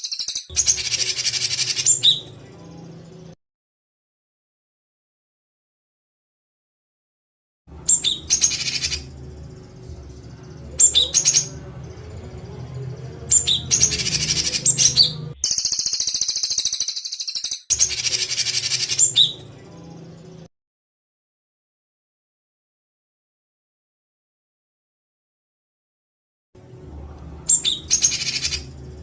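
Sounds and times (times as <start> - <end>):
songbird harsh buzzy calls: 0.0 - 2.3, 7.9 - 9.8, 13.3 - 19.4
low hum: 7.7 - 15.4, 26.6 - 29.0.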